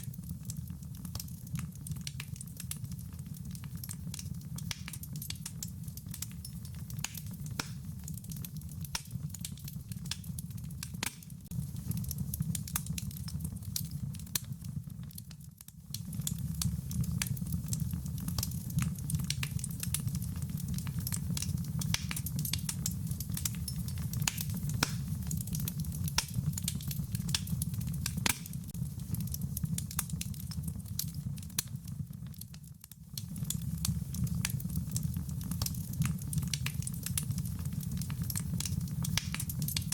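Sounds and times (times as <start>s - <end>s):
rain pattering: 0.0s - 39.9s
wood fire crackling and popping: 0.0s - 39.9s.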